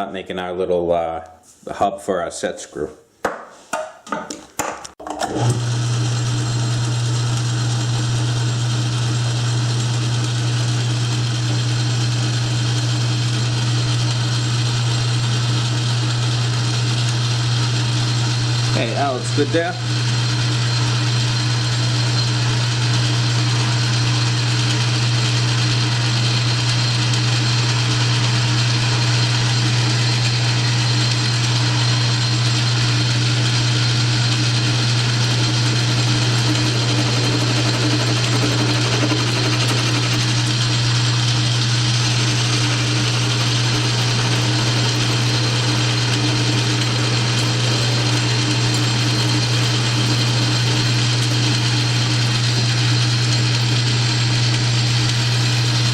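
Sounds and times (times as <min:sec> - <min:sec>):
metal lathe humming: 0:32.0 - 0:55.9.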